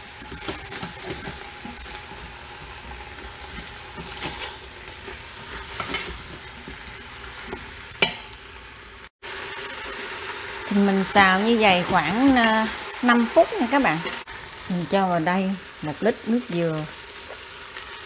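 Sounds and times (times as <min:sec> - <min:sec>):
meat sizzling in oil: 0:00.0 - 0:18.0
spatula scraping pot: 0:00.2 - 0:08.2.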